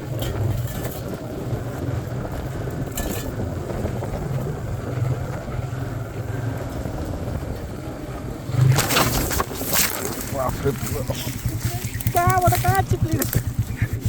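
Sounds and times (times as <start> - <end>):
motorcycle engine at low speed: 0.0 - 14.0
wind on microphone: 0.0 - 14.0.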